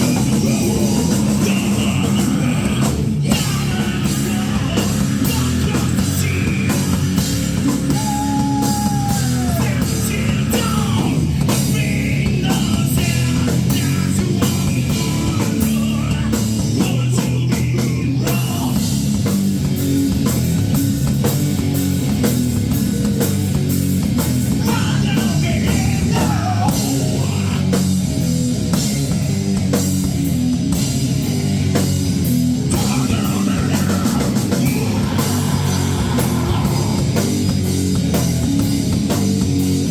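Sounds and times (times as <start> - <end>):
person singing: 0.0 - 18.8, 24.6 - 27.8, 32.7 - 37.4
drum kit: 0.0 - 39.9
electric guitar: 0.0 - 39.9.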